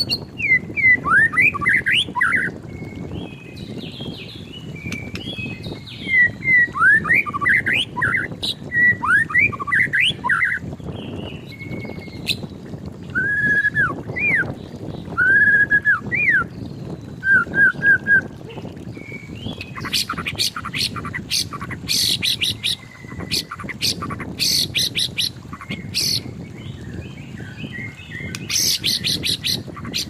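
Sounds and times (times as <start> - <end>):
bird singing whistled notes: 0.0 - 12.4, 13.1 - 18.3.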